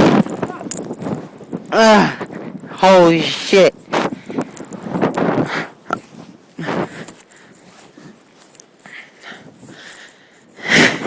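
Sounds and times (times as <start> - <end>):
storm wind buffeting microphone: 0.0 - 8.3.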